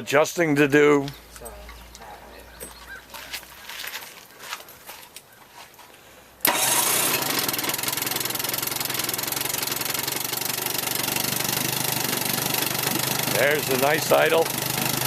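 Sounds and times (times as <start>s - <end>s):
outboard motor idling: 1.0s - 3.0s, 6.4s - 15.0s.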